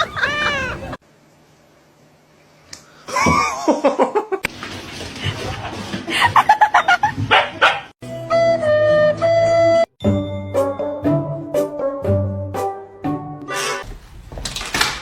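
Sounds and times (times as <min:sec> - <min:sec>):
animal gliding cries: 0:00.0 - 0:01.0
music: 0:08.0 - 0:13.8.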